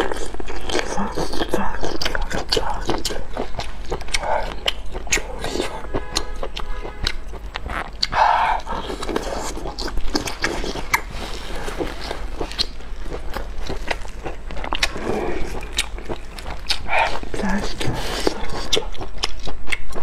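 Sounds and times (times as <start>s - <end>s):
mouth clicks and smacks: 0.0s - 20.0s
wet chewing and biting: 0.0s - 20.0s.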